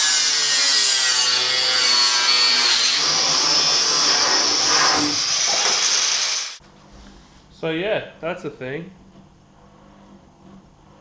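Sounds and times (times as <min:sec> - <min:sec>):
cut-off wheel cutting steel: 0:00.0 - 0:06.6.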